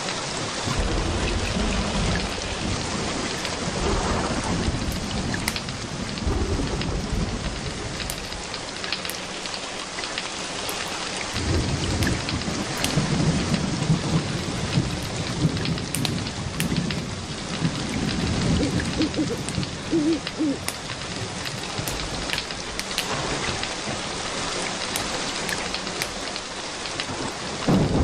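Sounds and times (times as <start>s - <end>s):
steady rain: 0.0s - 28.0s
rolling thunder: 0.5s - 8.8s, 11.3s - 24.4s, 27.1s - 28.0s
sharp crackles: 0.6s - 28.0s.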